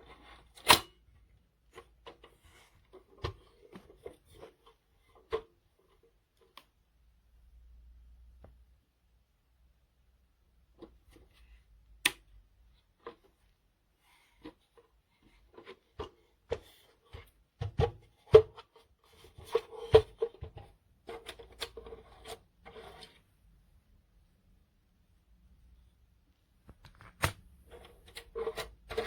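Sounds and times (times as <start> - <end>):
rubbing and scraping: 18.0 - 23.4, 27.6 - 29.0.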